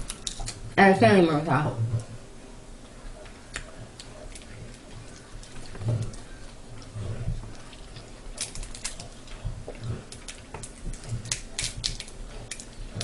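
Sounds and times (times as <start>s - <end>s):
crab shells cracking: 0.0s - 0.6s, 7.5s - 13.0s
soft chewing: 0.0s - 0.8s, 1.8s - 13.0s.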